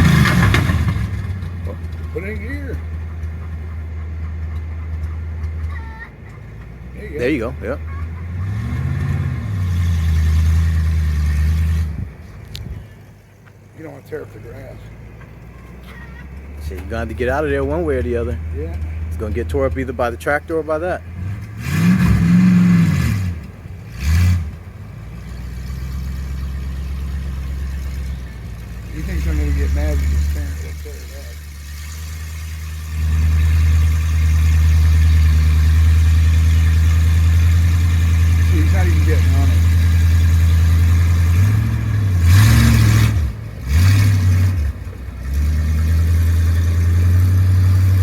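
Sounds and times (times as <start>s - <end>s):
small engine revving and idling: 0.0s - 48.0s
toy truck engine revving: 28.9s - 48.0s.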